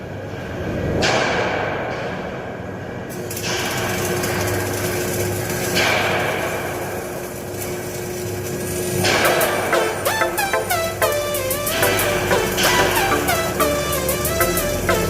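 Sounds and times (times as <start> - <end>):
steady hum: 6.4 - 15.0.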